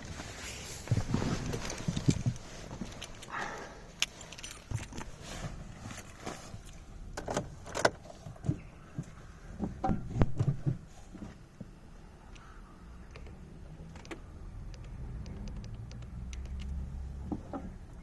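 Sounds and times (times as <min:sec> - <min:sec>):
car keys jangling: 0:00.2 - 0:08.2
sharp clicks and knocks: 0:13.1 - 0:17.7.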